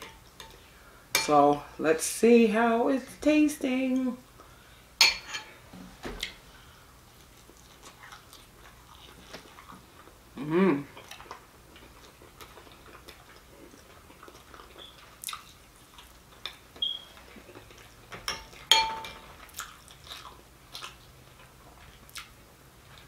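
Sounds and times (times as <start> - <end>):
chewing: 7.1 - 10.2, 10.8 - 23.0.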